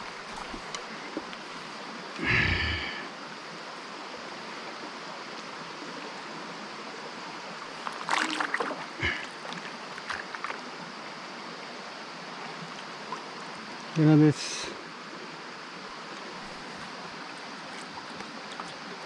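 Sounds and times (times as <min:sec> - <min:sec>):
mountain stream running: 0:00.0 - 0:19.0
water splashes and knocks: 0:07.8 - 0:10.6.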